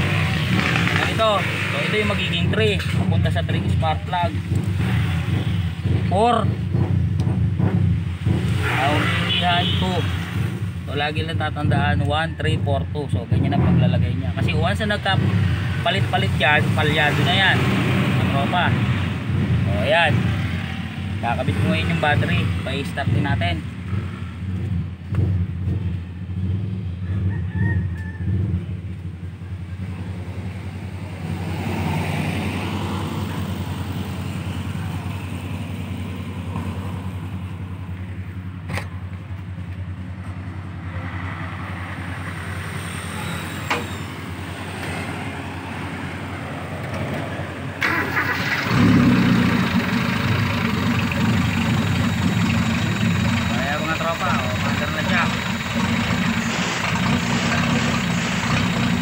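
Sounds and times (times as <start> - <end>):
engine misfiring: 47.8 - 59.0.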